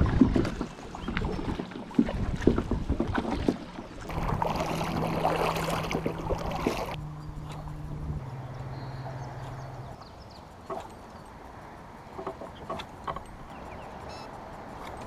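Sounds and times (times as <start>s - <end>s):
water and wind rushing: 0.0s - 15.0s
low hum: 4.0s - 12.1s.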